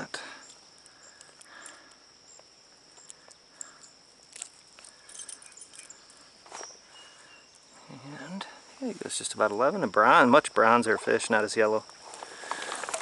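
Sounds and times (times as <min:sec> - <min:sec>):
insects chirring: 0:00.0 - 0:13.0
faint handling clicks and rustles: 0:00.4 - 0:06.8, 0:11.8 - 0:13.0.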